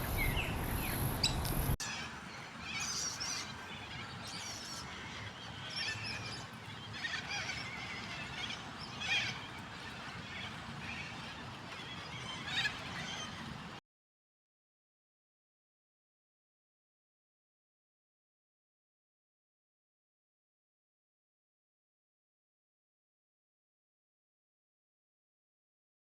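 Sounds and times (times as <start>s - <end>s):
birds chattering calls: 0.0s - 11.2s.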